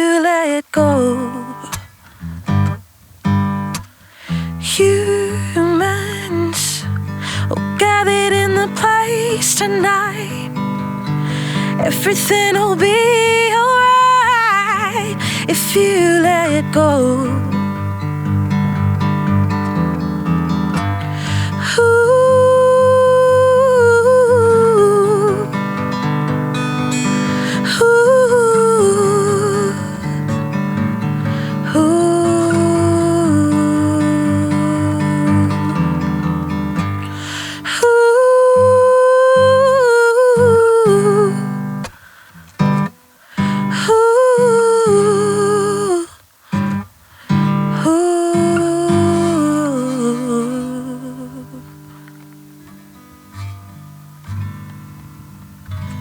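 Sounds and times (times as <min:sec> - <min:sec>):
acoustic guitar strumming: 0:00.8 - 0:56.0
wordless singing: 0:11.6 - 0:17.6, 0:21.5 - 0:25.6, 0:27.3 - 0:30.4.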